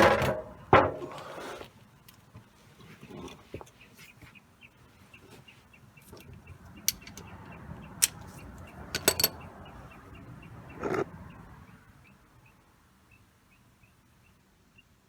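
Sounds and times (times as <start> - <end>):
hand tools clicking metallically: 6.7 - 9.4.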